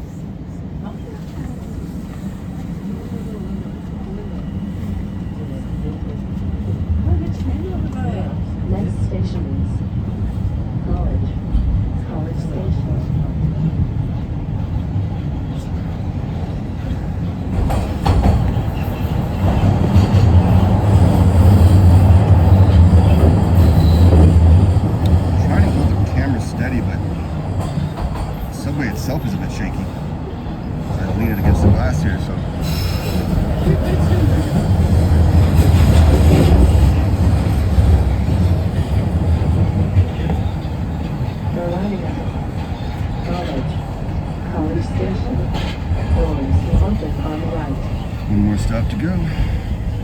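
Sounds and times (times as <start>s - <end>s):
subway train rumbling in tunnel: 0.0s - 50.0s
train wheels clacking: 14.9s - 30.0s.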